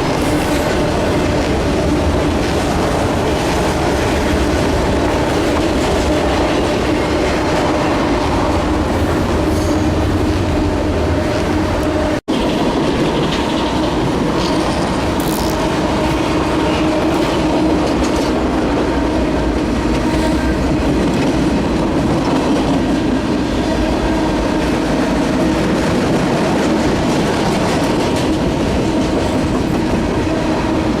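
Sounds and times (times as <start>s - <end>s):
freight train wheels rumbling: 0.0s - 31.0s
high wheel squeal: 9.4s - 10.1s.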